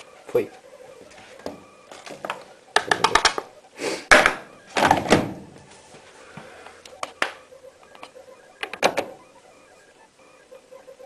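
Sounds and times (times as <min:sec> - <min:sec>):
mechanical clicks and knocks: 0:01.4 - 0:03.5, 0:06.9 - 0:09.2.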